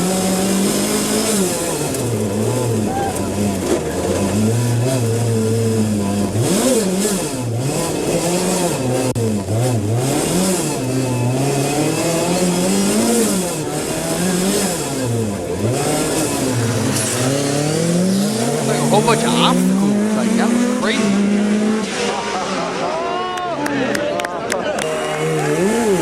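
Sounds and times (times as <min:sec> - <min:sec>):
rally car engine revving: 0:00.0 - 0:22.8
gravel and tyre hiss: 0:15.3 - 0:21.1.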